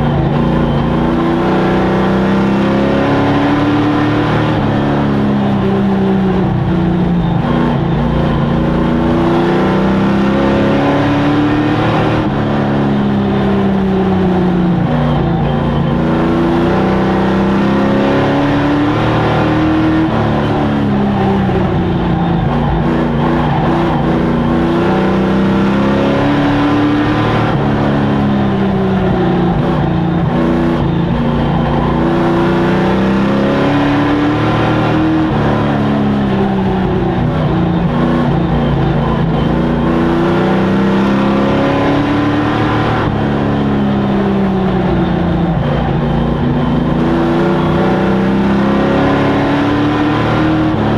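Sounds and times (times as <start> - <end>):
racing truck engines revving: 0.0 - 50.9.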